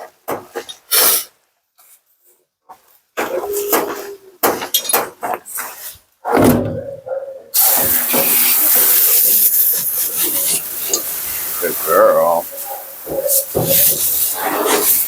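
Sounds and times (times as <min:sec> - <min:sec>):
dog whining: 0:03.2 - 0:04.4, 0:06.7 - 0:07.6
bath sprayer hissing water: 0:07.6 - 0:15.0.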